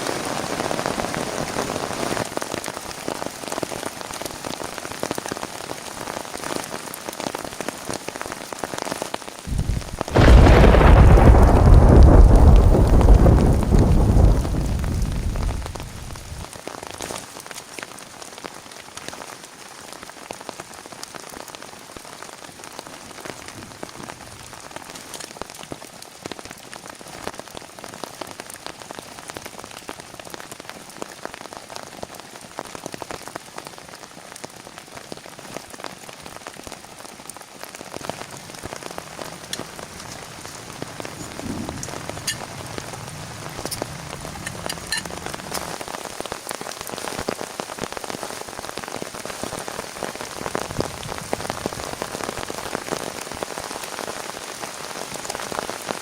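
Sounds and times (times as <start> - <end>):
rain falling: 0.0 - 56.0
sharp raindrop hits: 6.4 - 16.6, 36.5 - 54.5.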